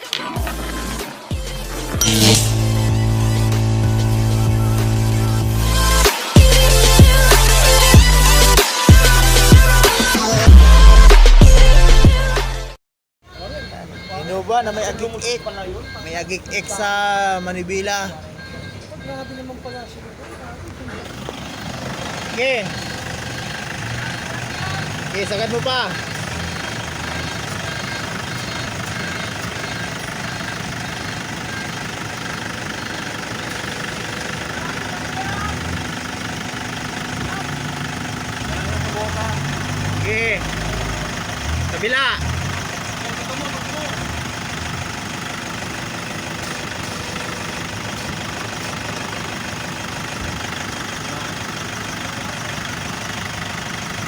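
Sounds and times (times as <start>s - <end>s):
car engine running: 1.6s - 11.0s, 20.2s - 54.0s
power steering drone with whine: 2.0s - 6.1s.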